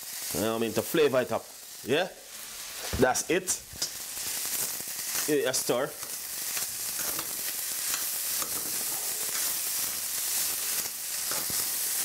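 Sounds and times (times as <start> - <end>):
stir-fry sizzling: 0.0 - 12.0
metal spoon scraping pan: 6.0 - 9.6, 11.2 - 11.6.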